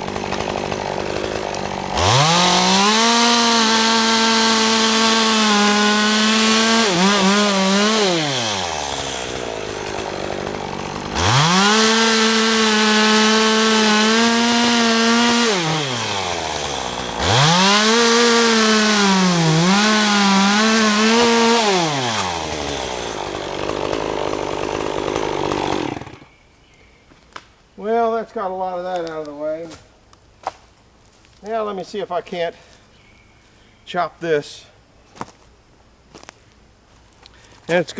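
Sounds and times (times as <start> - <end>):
chainsaw cutting wood: 0.0 - 26.3.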